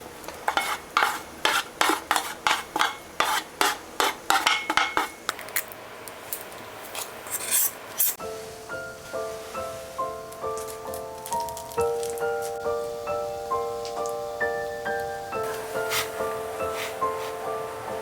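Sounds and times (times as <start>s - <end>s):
metal utensil scraping in a pot: 0.3s - 5.3s, 7.0s - 8.2s
background music: 8.2s - 18.0s.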